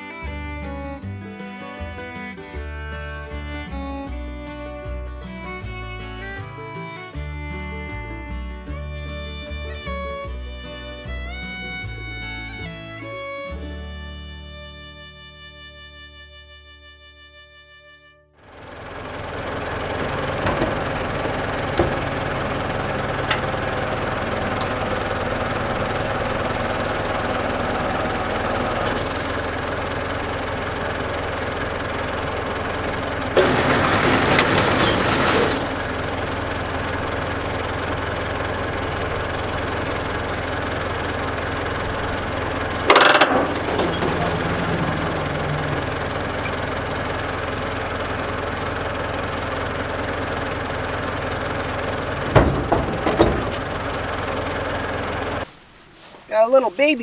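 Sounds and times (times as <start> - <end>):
tractor engine running: 0.0 - 4.5, 18.4 - 57.0.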